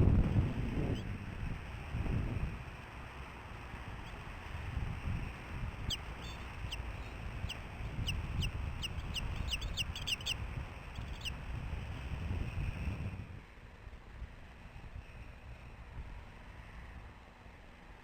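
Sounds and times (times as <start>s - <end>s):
wind buffeting microphone: 0.0s - 17.2s
eagle piping calls: 5.9s - 10.4s, 11.0s - 11.3s.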